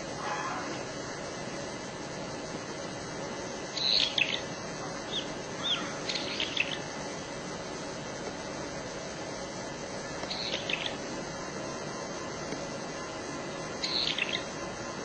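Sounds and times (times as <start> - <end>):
steady background hiss: 0.0 - 15.0
small bird chirping: 3.7 - 7.0, 10.2 - 11.1, 13.6 - 14.6.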